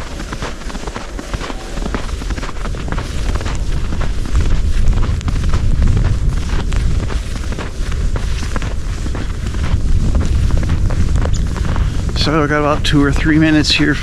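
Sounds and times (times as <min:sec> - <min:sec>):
footsteps crunching in snow: 0:00.0 - 0:14.0
wind buffeting microphone: 0:00.0 - 0:14.0.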